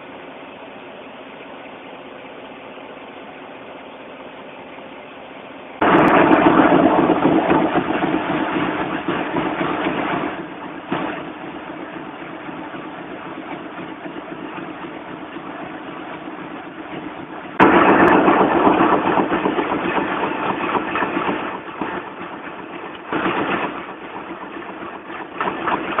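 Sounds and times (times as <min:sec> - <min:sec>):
printing press running: 0:05.8 - 0:26.0.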